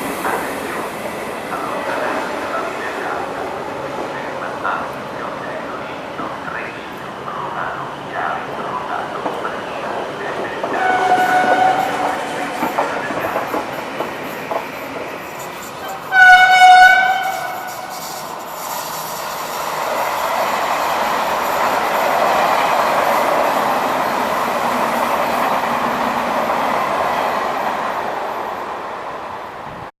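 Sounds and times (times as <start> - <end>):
train rumbling past: 0.0 - 29.9
train horn blast: 10.7 - 12.3, 16.1 - 18.2.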